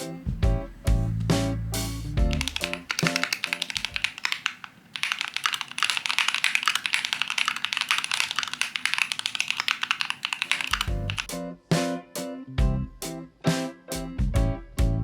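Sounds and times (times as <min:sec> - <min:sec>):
rapid dense clicking: 0:02.2 - 0:11.3.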